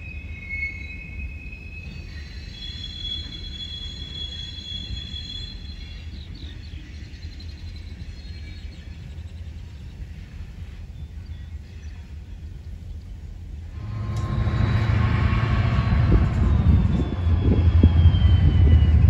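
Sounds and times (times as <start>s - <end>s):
high thin wheel squeal: 0.0s - 6.0s
freight train rumbling on rails: 0.0s - 19.0s.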